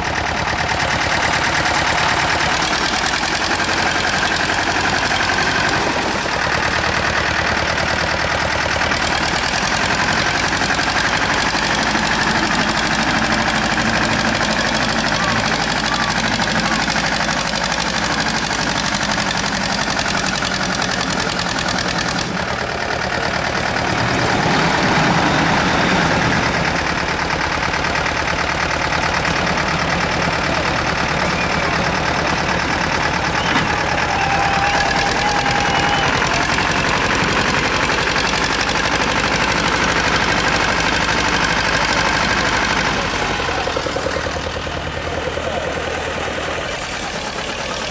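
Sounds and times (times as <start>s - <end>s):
tractor engine running under load: 0.0s - 47.9s.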